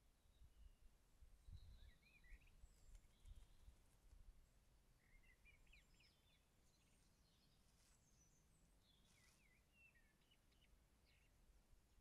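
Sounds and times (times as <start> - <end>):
bird chirping: 1.4 - 3.8, 5.0 - 11.4.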